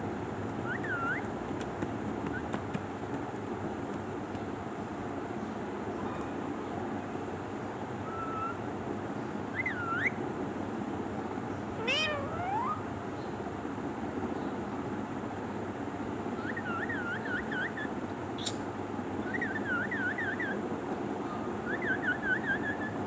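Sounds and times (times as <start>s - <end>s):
parrot whistling: 11.8s - 12.8s.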